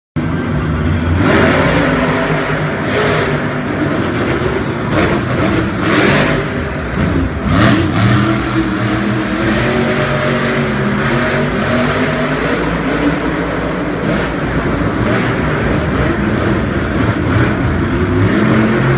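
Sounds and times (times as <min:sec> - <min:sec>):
monster truck engine revving: 0:00.2 - 0:18.9.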